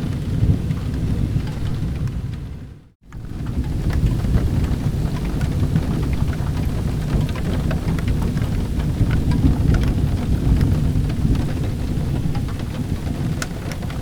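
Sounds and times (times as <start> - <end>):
steady rain rumble: 0.0 - 14.0.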